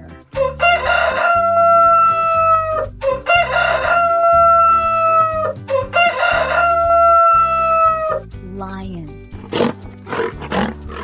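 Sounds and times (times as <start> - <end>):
rooster crowing: 0.4 - 8.2.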